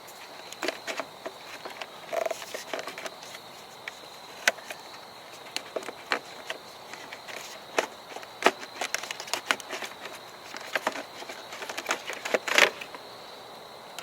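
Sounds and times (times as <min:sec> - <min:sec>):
clattering rustle: 0:00.0 - 0:13.0
plastic parts clicking and knocking: 0:00.5 - 0:03.1, 0:05.4 - 0:13.0.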